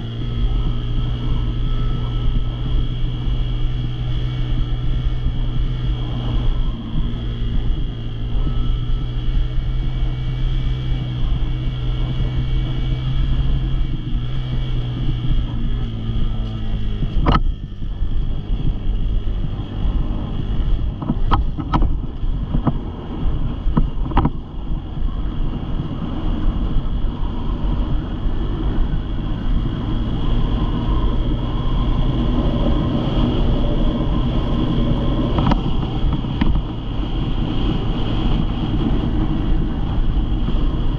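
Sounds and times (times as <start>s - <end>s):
dirt bike engine running: 0.0s - 40.9s
sharp clicks or knocks: 35.4s - 36.6s.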